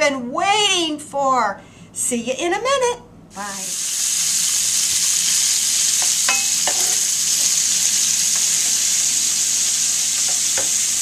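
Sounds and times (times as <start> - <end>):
chicken sizzling in a skillet: 3.5 - 11.0
spoon knocking a pan: 6.0 - 7.1, 10.1 - 10.9.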